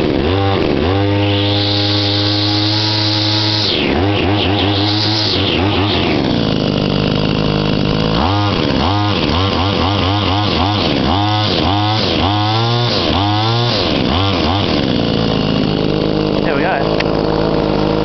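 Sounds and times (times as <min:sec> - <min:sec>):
line trimmer engine revving: 0:00.0 - 0:18.0.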